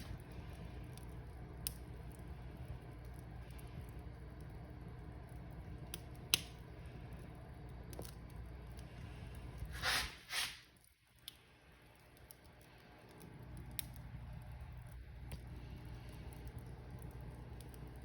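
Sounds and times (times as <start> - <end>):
wood fire crackling: 0.0 - 18.0
fire hissing bursts: 9.0 - 10.8.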